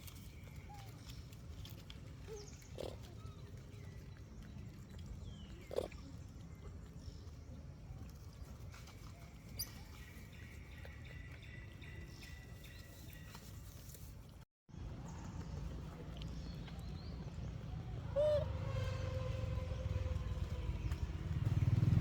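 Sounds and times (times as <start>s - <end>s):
low rumble: 14.7s - 22.0s
monkeys calling: 18.0s - 18.6s.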